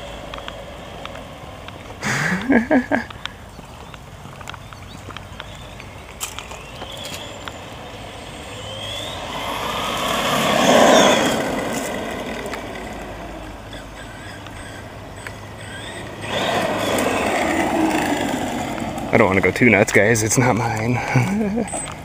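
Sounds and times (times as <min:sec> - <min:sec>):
rc truck motor whine: 0:00.0 - 0:02.4, 0:05.1 - 0:20.2.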